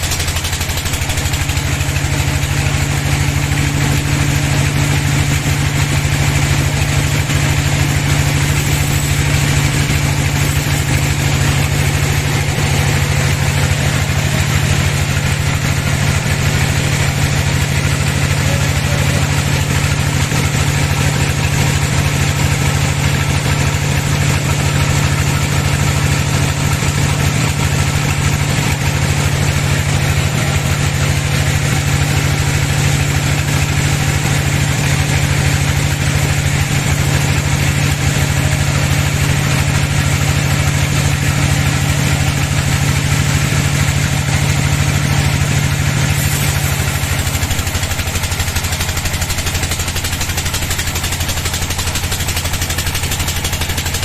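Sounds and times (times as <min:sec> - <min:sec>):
bandsaw machinery droning: 0:00.0 - 0:54.0.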